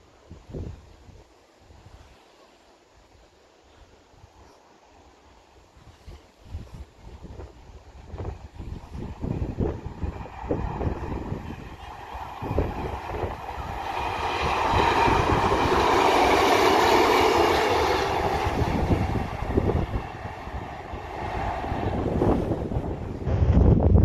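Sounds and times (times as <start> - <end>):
wind buffeting microphone: 0.2 - 2.0, 5.7 - 24.0
diesel train passing: 7.0 - 24.0.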